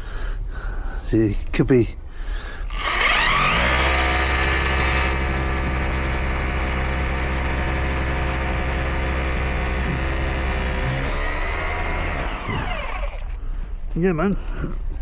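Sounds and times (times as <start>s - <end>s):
motor starting up and running: 2.7s - 13.5s.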